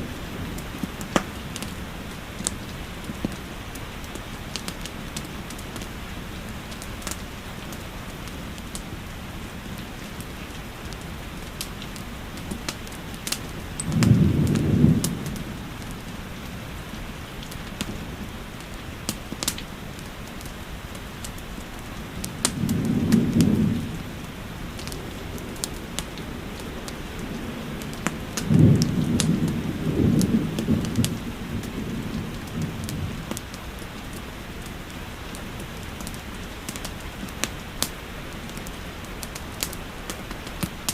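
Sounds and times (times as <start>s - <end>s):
steady rain: 0.0s - 40.9s
wood fire crackling: 0.0s - 40.9s
thunder rumbling: 10.9s - 18.6s, 21.9s - 34.6s.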